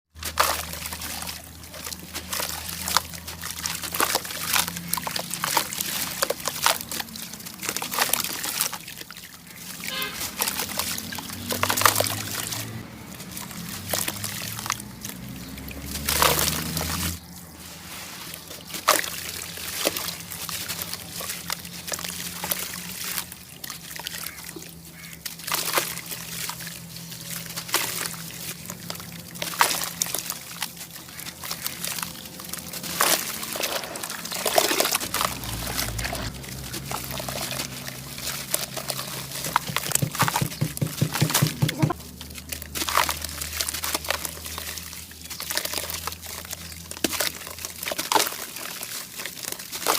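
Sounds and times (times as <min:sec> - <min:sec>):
water pouring and sloshing: 0:00.1 - 0:49.9
cement chunks crumbling crackles: 0:11.4 - 0:22.8, 0:27.4 - 0:49.9.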